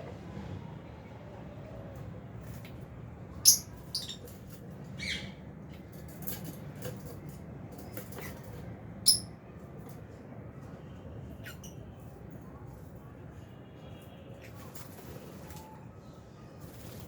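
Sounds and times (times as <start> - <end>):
lovebirds chirping and squawking: 3.4 - 5.4, 9.0 - 9.3.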